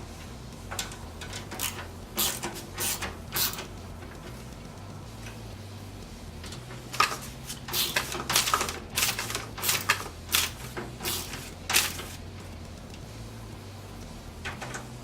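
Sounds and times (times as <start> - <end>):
computer parts clicking and knocking: 0.7 - 4.4, 6.4 - 12.2, 14.4 - 15.0.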